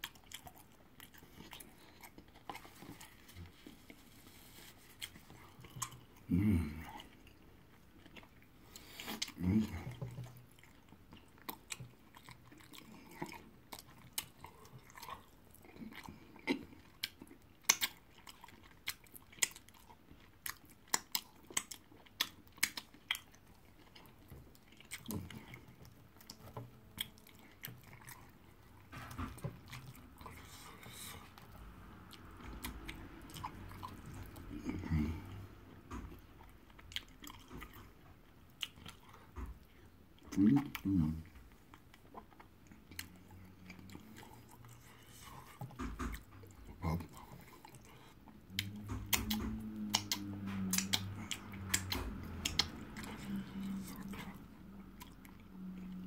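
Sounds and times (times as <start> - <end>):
chewing food: 0.0 - 56.0
mouth smacks and clicks: 16.4 - 18.0, 48.5 - 55.2.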